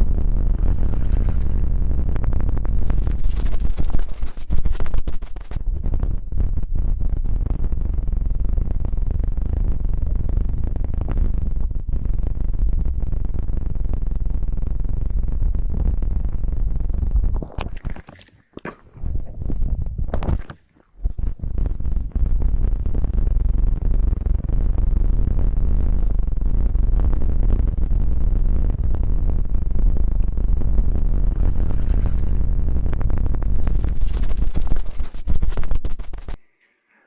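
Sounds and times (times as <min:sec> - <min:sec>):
muffled rubbing on microphone: 0:00.6 - 0:05.9, 0:31.3 - 0:36.4
sharp rubbing sounds: 0:02.6 - 0:05.6, 0:33.5 - 0:36.4.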